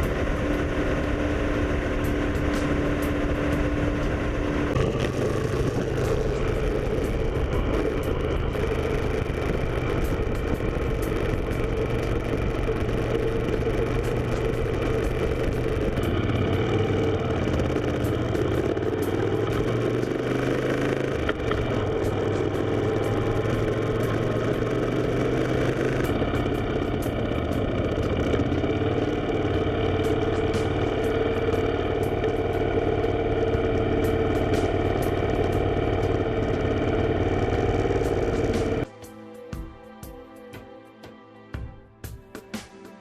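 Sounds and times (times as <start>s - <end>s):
motorcycle engine running: 0.0s - 38.9s
road noise: 0.0s - 39.2s
wind: 0.0s - 43.0s.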